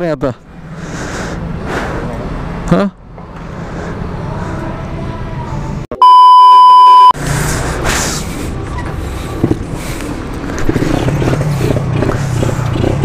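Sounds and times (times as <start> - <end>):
engines and traffic rumble: 0.0 - 5.9, 6.5 - 13.0
censor bleep: 5.9 - 7.2.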